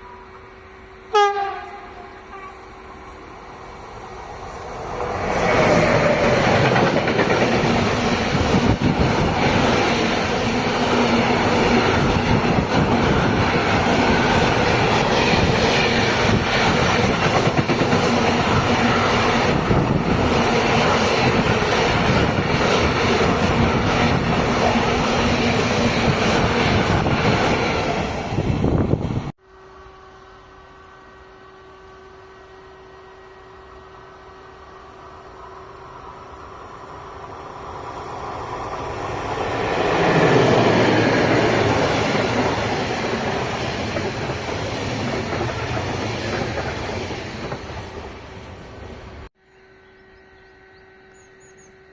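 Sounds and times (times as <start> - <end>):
train wheels clattering: 4.6 - 27.7.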